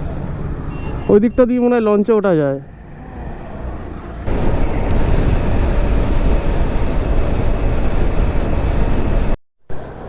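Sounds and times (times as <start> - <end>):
wind buffeting microphone: 4.2 - 9.4.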